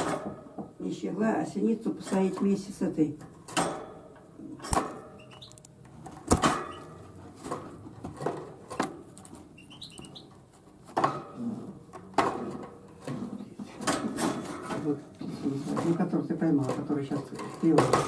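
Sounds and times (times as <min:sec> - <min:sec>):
faint high bird chirps: 0:05.2 - 0:05.6, 0:09.6 - 0:10.3.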